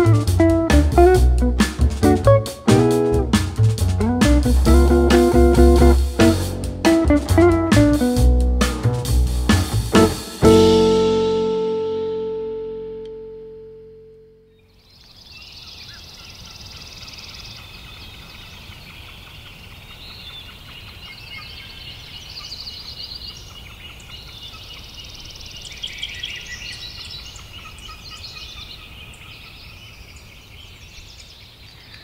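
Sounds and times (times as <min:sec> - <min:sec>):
birds chirping and calling: 0:14.5 - 0:32.0.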